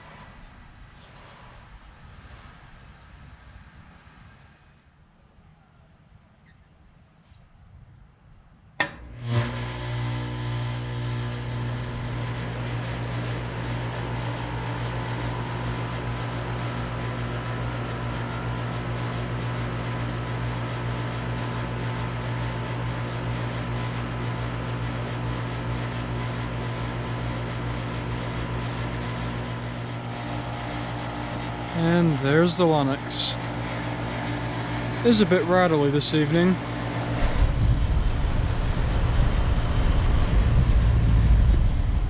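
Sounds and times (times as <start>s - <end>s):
heat pump humming: 8.7s - 42.0s
heat pump switch click: 8.8s - 9.7s.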